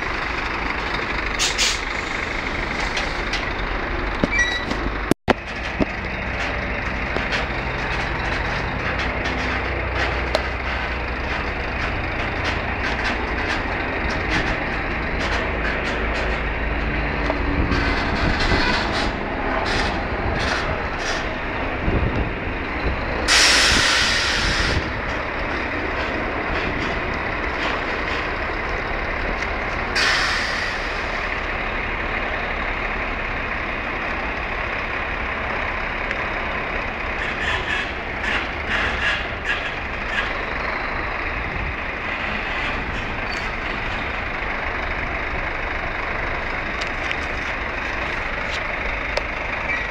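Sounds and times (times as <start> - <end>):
truck engine running: 0.0 - 49.9
compressed air hissing: 23.3 - 24.8.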